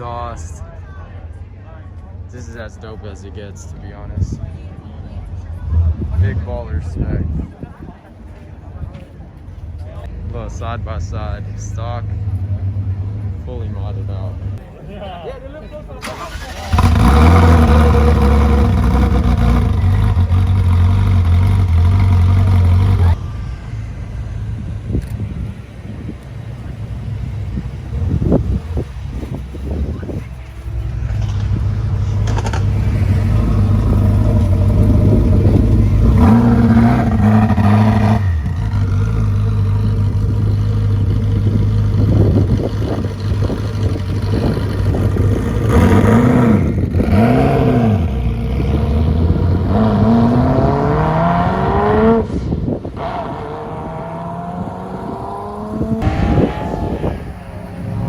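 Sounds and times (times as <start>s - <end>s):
sports car engine revving: 16.1s - 23.2s, 26.5s - 58.0s.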